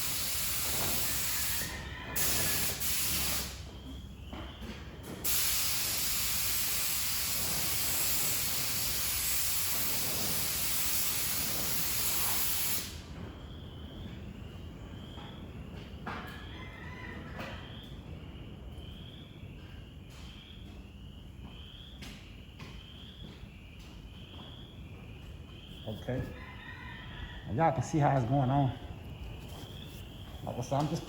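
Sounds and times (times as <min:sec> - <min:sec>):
paint spray gun hissing: 0:00.0 - 0:03.6, 0:05.3 - 0:13.0
faint insect chirping: 0:16.4 - 0:31.0.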